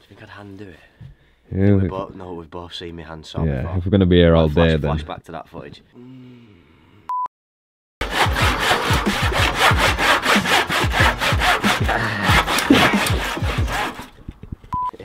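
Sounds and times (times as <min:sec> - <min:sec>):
hand saw sawing: 0:08.0 - 0:14.2.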